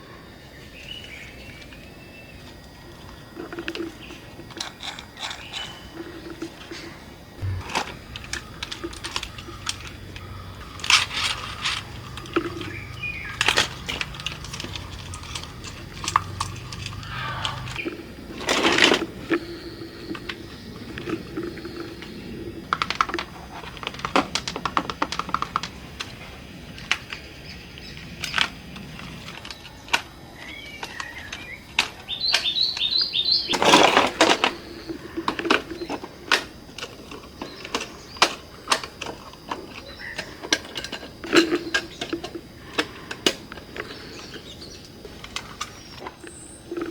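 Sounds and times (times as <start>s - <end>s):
toy parts clicking and knocking: 3.4s - 6.8s, 7.4s - 17.8s
low hum: 7.0s - 18.3s.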